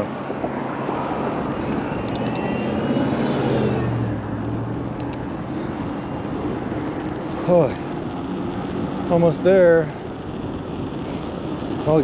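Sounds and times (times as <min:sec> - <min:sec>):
vehicle passing by: 0:00.0 - 0:09.2
steady road noise: 0:00.0 - 0:12.0.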